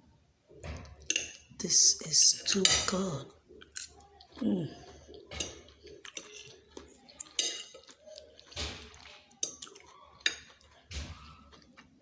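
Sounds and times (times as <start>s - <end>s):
cutlery clinking on dishes: 0.6s - 1.6s, 2.4s - 4.0s, 5.1s - 11.7s.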